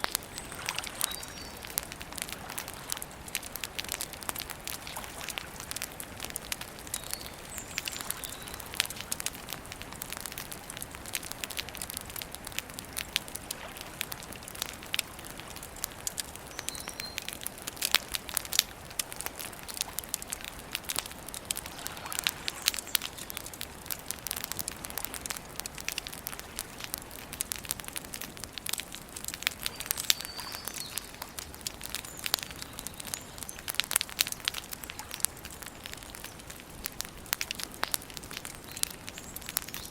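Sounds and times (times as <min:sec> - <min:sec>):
campfire crackling and popping: 0:00.0 - 0:39.9
faint bird chirps: 0:29.7 - 0:31.4.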